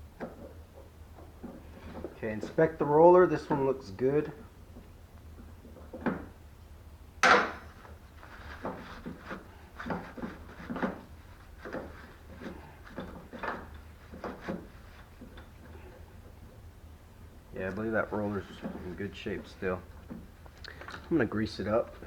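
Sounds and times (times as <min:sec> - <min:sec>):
rubbing and scraping strokes: 0:08.1 - 0:16.0.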